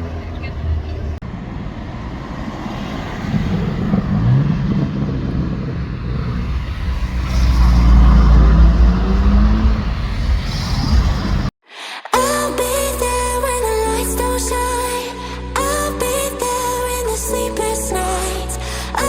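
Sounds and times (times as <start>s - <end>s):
car engine revving: 0.0s - 11.5s
deep engine rumble: 0.0s - 11.6s.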